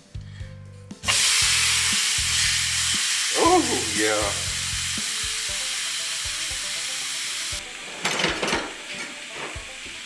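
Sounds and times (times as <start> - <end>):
faint background music with beat: 0.0 - 10.0
food sizzling in a frying pan: 1.1 - 10.0
stirring clatter in pan: 7.7 - 10.0.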